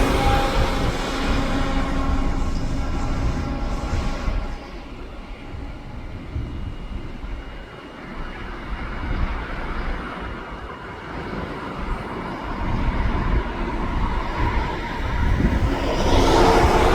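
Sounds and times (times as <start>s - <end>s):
distant jet engine rumble: 0.0s - 16.9s.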